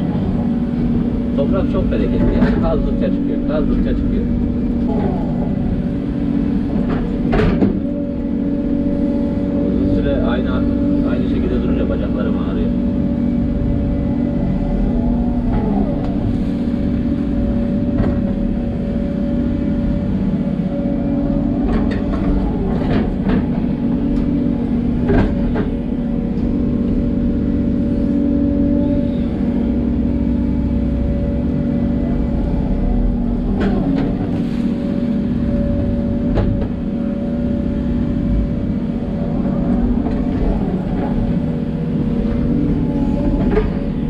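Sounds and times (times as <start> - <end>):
excavator diesel engine under load: 0.0 - 44.0
machine knocks and clunks: 6.7 - 8.0, 17.8 - 18.5, 21.6 - 26.5, 35.7 - 36.9.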